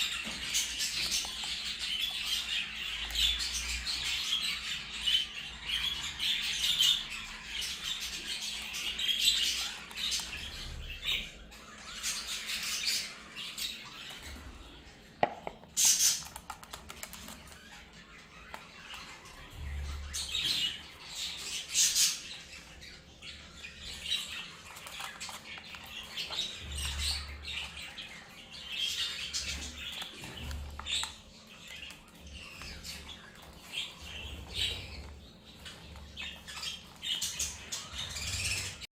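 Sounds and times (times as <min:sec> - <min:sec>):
budgerigars chirping: 0:00.0 - 0:38.9.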